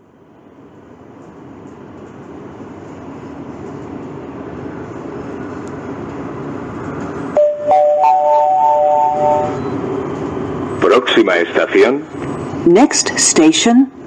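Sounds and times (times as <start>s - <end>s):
metro train rumble: 0.0s - 14.0s
electronic chime tones: 7.4s - 9.8s.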